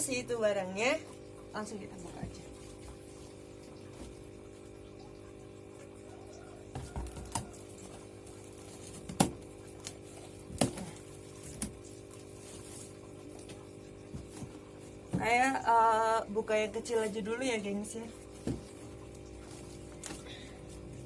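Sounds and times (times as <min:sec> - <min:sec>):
hands handling cardboard parcel: 0:06.8 - 0:15.2, 0:18.2 - 0:21.0.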